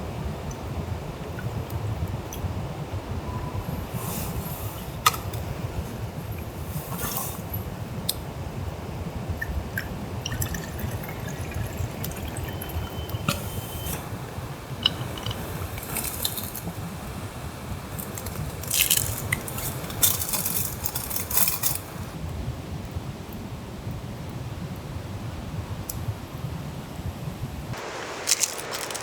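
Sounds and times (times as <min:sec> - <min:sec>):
liquid pouring and dripping: 0:09.4 - 0:21.8.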